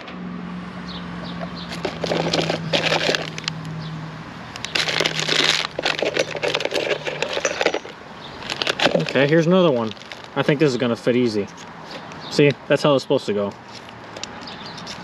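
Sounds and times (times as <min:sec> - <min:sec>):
copper pipe clinking and scraping: 0:01.7 - 0:03.5, 0:04.6 - 0:10.5.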